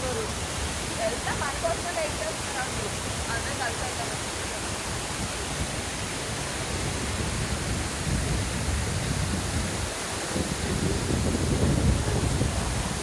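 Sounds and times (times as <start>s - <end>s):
deep water rumble: 0.0s - 13.0s
waterfall rushing: 0.0s - 13.0s.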